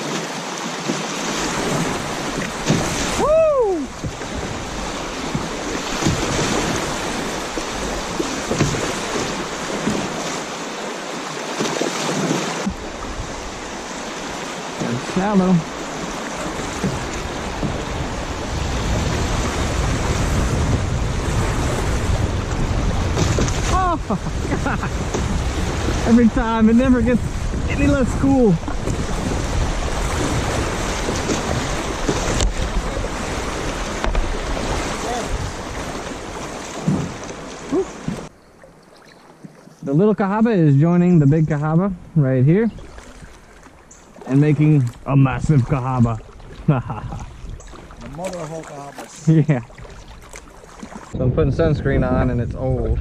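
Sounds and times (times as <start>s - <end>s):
river rapid splashing: 0.0s - 51.2s
wind buffeting microphone: 15.0s - 38.3s, 49.0s - 53.0s.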